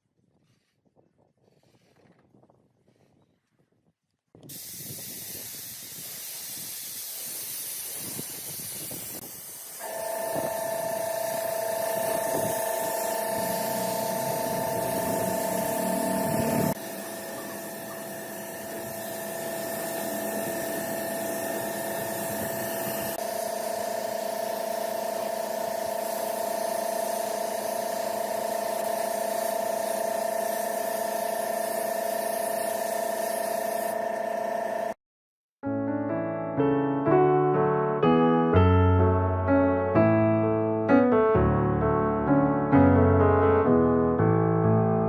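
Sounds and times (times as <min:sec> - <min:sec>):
steady hissing: 0:04.5 - 0:10.5
machine whine: 0:09.8 - 0:35.0.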